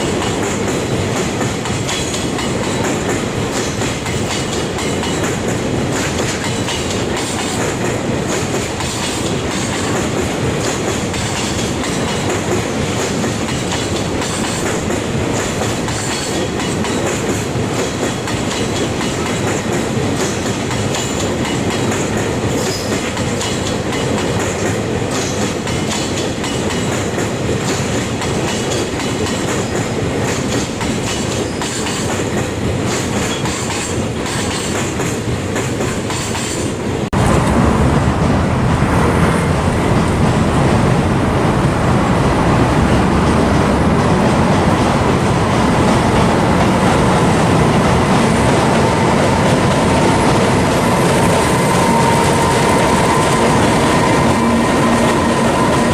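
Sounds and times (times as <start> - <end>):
freight train rolling past: 0.0 - 55.9.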